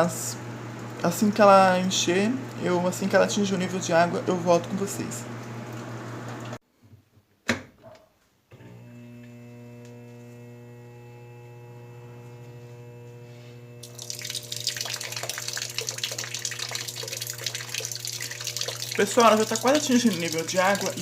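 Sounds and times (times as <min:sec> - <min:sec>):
electrical hum: 0:08.6 - 0:21.0
water splashing into drum: 0:13.8 - 0:21.0.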